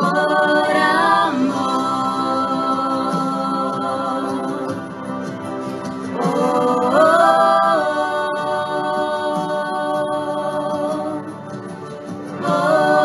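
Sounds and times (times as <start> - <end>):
singer holding long wordless note: 0.0 - 5.0, 6.1 - 11.5
worship song: 0.0 - 13.0.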